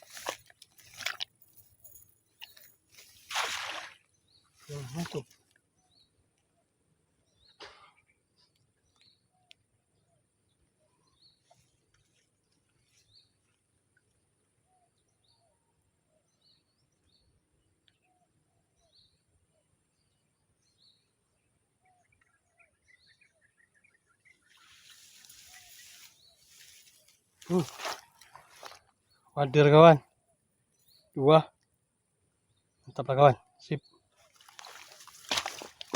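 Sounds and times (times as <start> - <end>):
faint bird chirps: 4.3 - 29.5.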